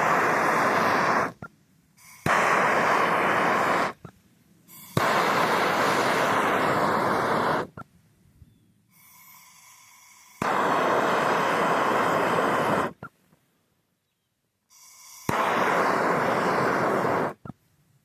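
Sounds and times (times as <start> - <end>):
lighter flame hissing: 0.0 - 1.4, 2.0 - 4.1, 4.7 - 7.8, 9.0 - 13.0, 14.7 - 17.4.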